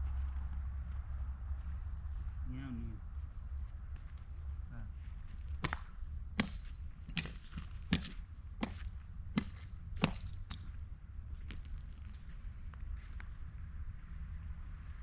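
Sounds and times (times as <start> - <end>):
steady low rumble: 0.0 - 15.0
sharp footsteps: 5.0 - 13.4.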